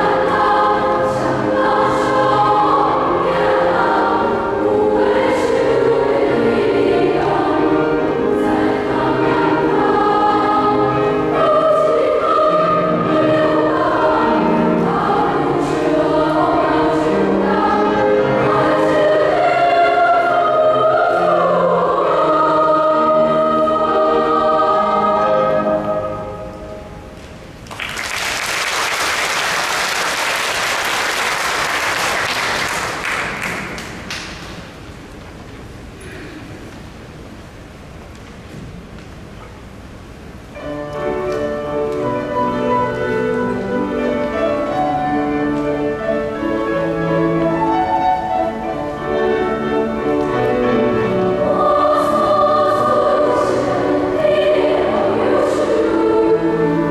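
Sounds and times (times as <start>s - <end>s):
choir singing in harmony: 0.0s - 27.1s, 40.6s - 56.9s
audience applause: 27.6s - 34.4s.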